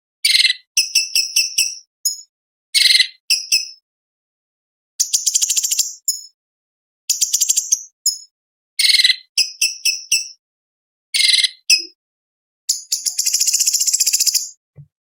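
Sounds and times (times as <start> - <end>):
bird chattering song: 0.2 - 3.8, 5.0 - 6.4, 7.1 - 10.4, 11.2 - 12.0, 12.7 - 14.6
bird trill: 0.2 - 3.8, 5.0 - 6.4, 7.1 - 10.4, 11.2 - 12.0, 12.7 - 14.6.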